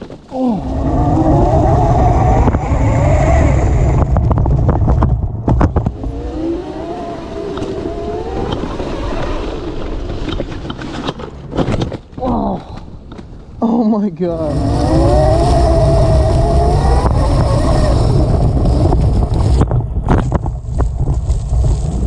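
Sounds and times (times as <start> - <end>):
wind buffeting microphone: 0.0 - 10.7, 14.4 - 22.0
electric motor whining: 0.6 - 4.2, 14.4 - 19.0.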